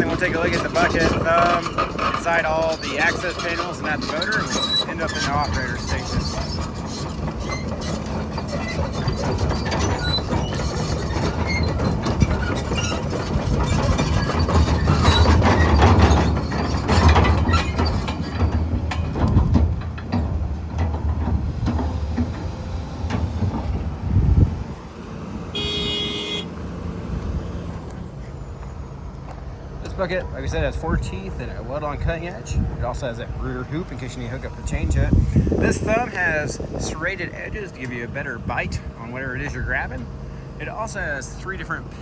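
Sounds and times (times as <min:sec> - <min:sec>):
metallic clanking of steel tracks: 0:00.0 - 0:24.9, 0:25.5 - 0:26.7
excavator engine and hydraulics: 0:00.0 - 0:42.0
short beep: 0:25.6 - 0:26.5.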